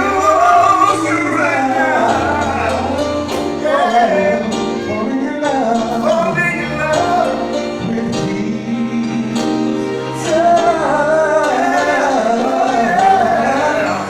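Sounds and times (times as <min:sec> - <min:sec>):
instrumental accompaniment: 0:00.0 - 0:14.0
voices singing gospel song: 0:00.0 - 0:14.0.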